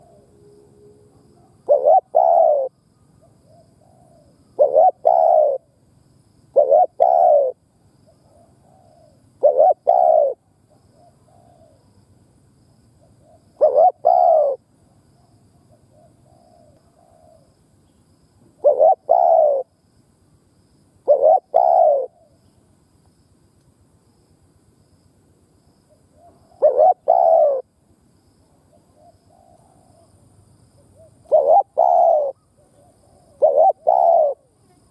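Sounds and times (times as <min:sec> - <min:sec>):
dove cooing: 0:00.0 - 0:05.8, 0:06.5 - 0:07.6, 0:08.2 - 0:11.8, 0:13.0 - 0:14.6, 0:15.6 - 0:17.5, 0:18.6 - 0:19.7, 0:21.0 - 0:22.4, 0:26.1 - 0:27.7, 0:28.5 - 0:30.2, 0:30.8 - 0:34.9.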